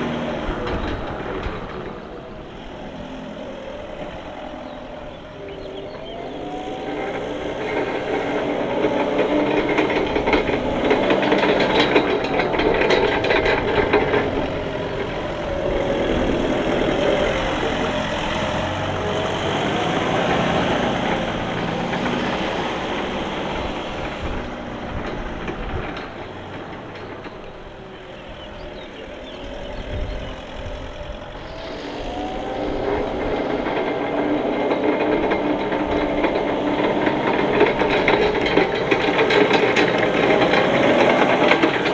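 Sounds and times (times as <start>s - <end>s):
diesel forklift engine running: 0.0s - 41.9s.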